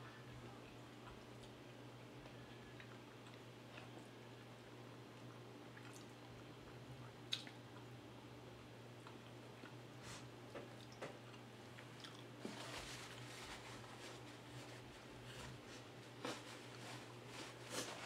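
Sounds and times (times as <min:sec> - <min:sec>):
faint closed-mouth chewing: 0:05.1 - 0:08.0, 0:10.6 - 0:12.3.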